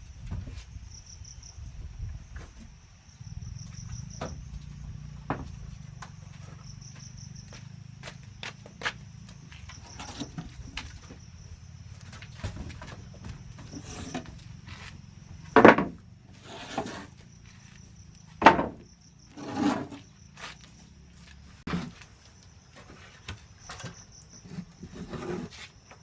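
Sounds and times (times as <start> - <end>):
high insect drone: 0.0 - 26.0
scraping crunches: 8.0 - 26.0.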